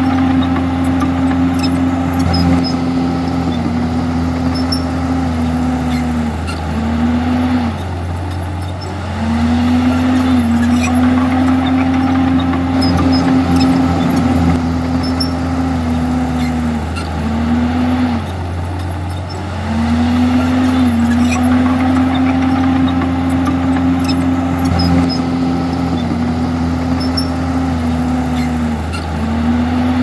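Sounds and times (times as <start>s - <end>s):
machine whine: 0.0s - 6.5s, 9.6s - 15.9s, 20.0s - 29.0s
bulldozer diesel engine running: 0.0s - 30.0s.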